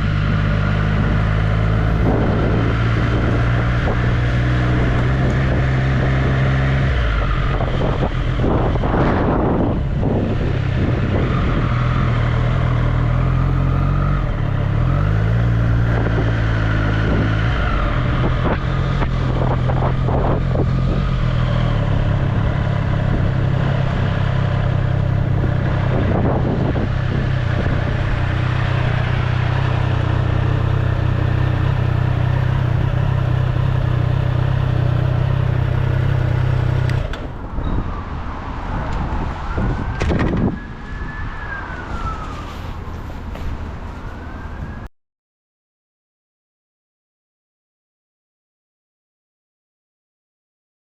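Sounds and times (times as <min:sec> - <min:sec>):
motorcycle engine running: 0:00.0 - 0:37.4.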